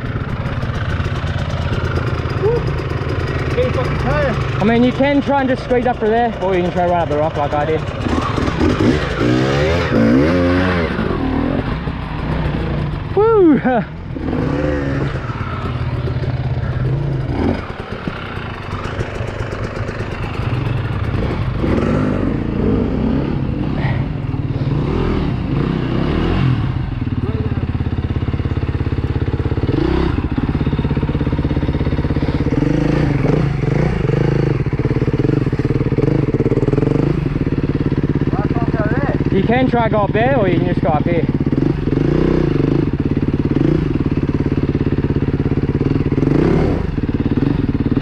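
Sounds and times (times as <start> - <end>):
dirt bike engine at low revs: 0.0 - 48.0.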